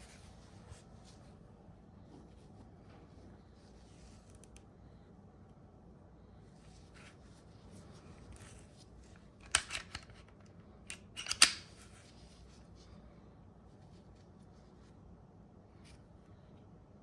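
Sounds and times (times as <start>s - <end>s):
sharp clicks of pistol parts: 9.4s - 11.7s.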